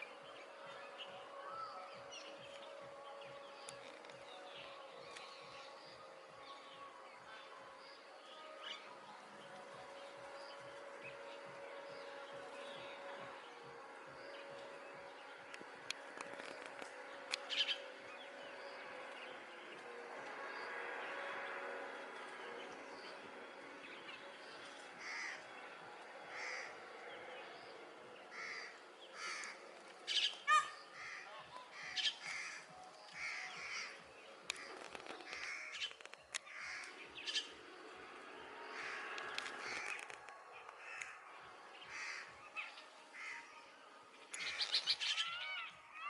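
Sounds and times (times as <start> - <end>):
birds giving short harsh calls: 28.4 - 32.6.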